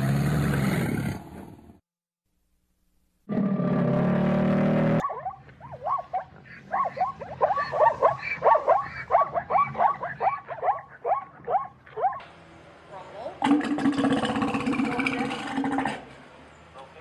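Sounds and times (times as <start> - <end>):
drawn-out buzzy animal call: 5.0 - 12.2
rapid short animal calls: 5.0 - 12.2.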